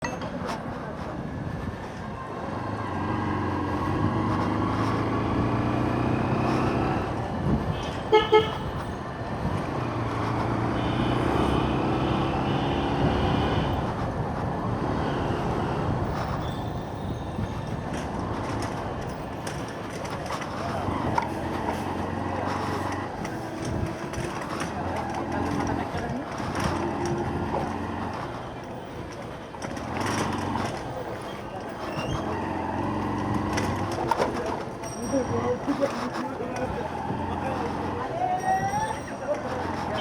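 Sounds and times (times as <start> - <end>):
motorcycle engine accelerating: 2.5 - 7.4
horn short beeps: 8.0 - 8.8.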